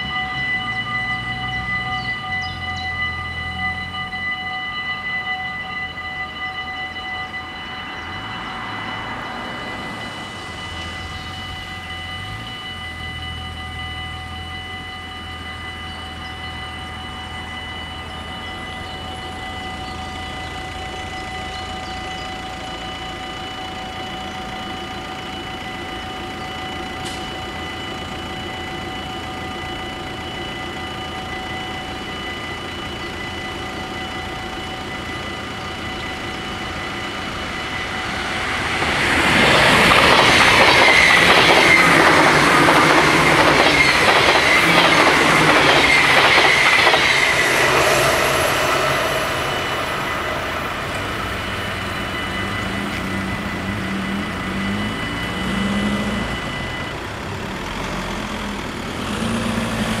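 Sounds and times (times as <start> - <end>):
level-crossing bells ringing: 0.0 - 60.0.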